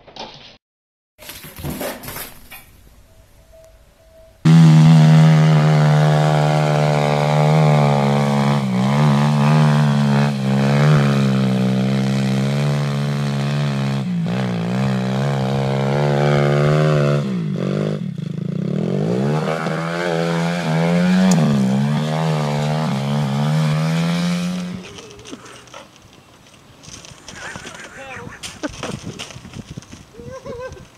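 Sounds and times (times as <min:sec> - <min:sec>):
quad bike engine revving: 0:04.4 - 0:25.7.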